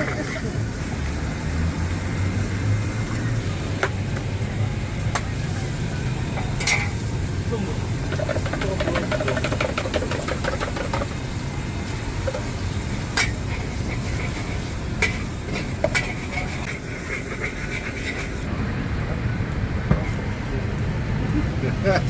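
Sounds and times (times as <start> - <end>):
low engine-like rumble: 0.0 - 17.4
metal spatula scraping a wok: 13.2 - 18.5.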